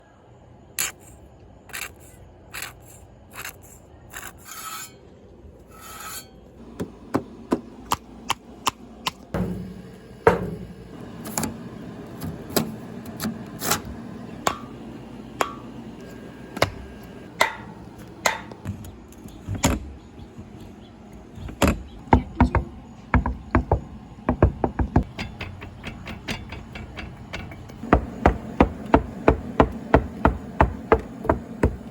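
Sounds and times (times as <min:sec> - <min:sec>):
sharp clicks and knocks: 0:06.8 - 0:31.9.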